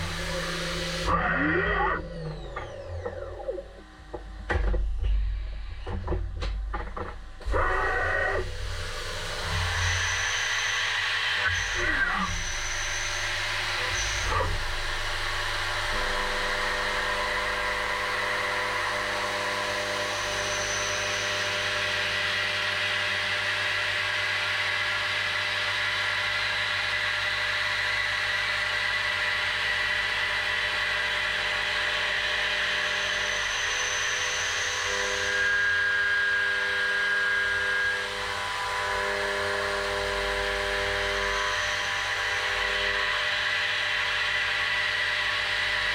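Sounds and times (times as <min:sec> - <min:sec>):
milling machine spindle cutting metal: 0:00.0 - 0:04.0, 0:07.4 - 0:23.3, 0:29.6 - 0:45.9.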